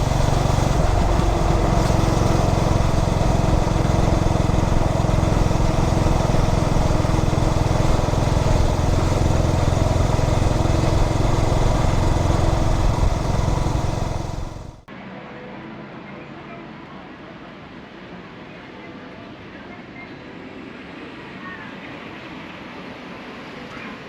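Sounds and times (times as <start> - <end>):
motorcycle engine running: 0.0 - 14.9
road noise: 0.0 - 14.9.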